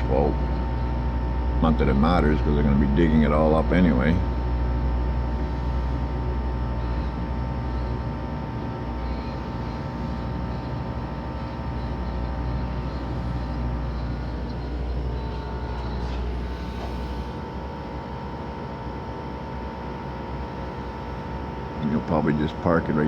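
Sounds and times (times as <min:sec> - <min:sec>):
excavator diesel engine rumbling: 0:00.0 - 0:18.4
steady engine whine: 0:00.0 - 0:23.0.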